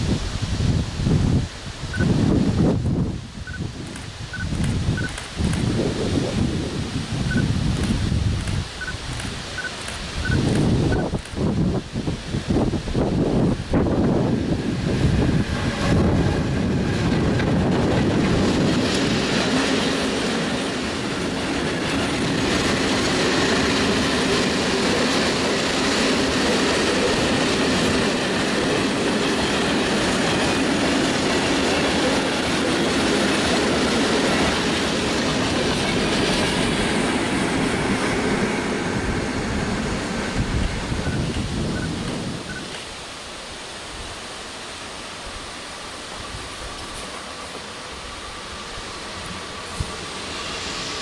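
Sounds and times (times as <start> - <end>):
train wheels clacking over rail joints: 17.0 - 38.4.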